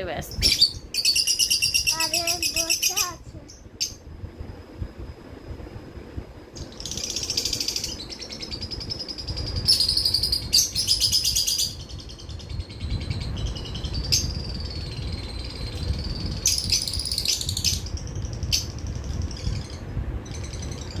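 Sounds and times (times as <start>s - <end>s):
lovebirds chirping and chattering: 0.2s - 4.0s, 6.6s - 21.0s.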